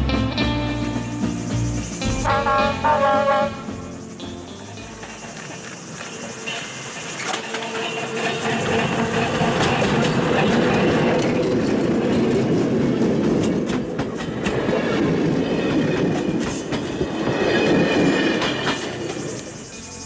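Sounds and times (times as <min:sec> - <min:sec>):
train rumble: 0:00.0 - 0:20.0
wheels clicking over rail joints: 0:01.4 - 0:20.0.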